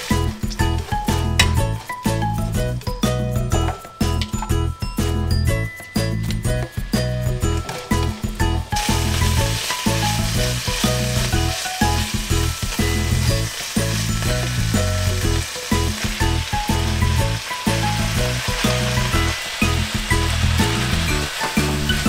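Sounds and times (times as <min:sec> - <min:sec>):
background music with steady beat: 0:00.0 - 0:22.0
meat sizzling in frying pan: 0:07.6 - 0:22.0.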